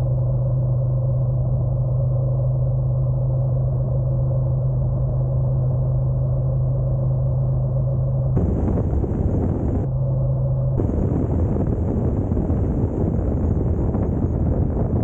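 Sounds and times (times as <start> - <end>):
loud rushing noise: 8.4 - 9.9, 10.8 - 15.0
motorcycle engine droning: 8.4 - 9.9, 10.8 - 15.0.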